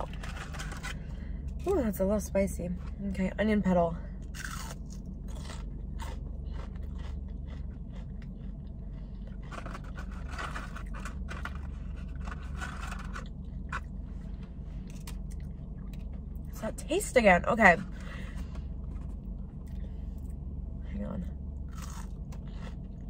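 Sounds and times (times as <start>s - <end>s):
low steady hum: 0.0s - 23.0s
crispy food crunching: 4.2s - 14.0s, 21.6s - 23.0s.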